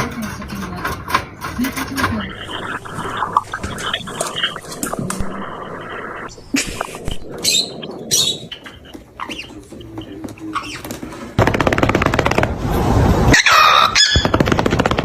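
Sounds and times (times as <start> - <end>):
high squawk: 2.0 - 11.0
parrot chirping and whistling: 2.4 - 9.5
loud rapid rattling: 11.4 - 12.6, 14.1 - 15.0.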